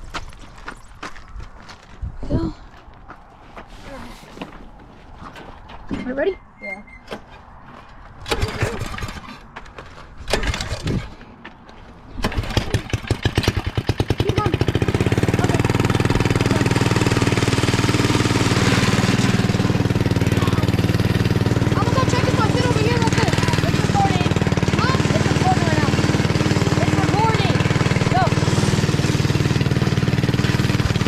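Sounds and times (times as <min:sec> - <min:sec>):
small engine starting and running: 0:08.2 - 0:09.5, 0:10.2 - 0:11.2, 0:12.1 - 0:31.0.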